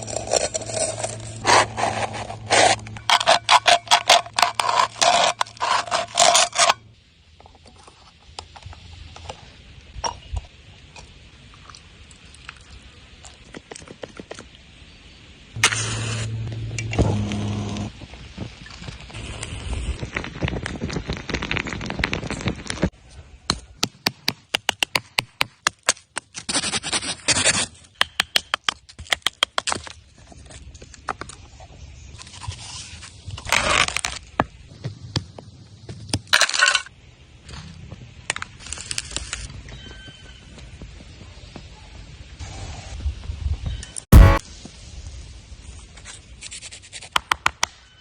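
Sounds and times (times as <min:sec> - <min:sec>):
scraping: 0:00.0 - 0:06.8.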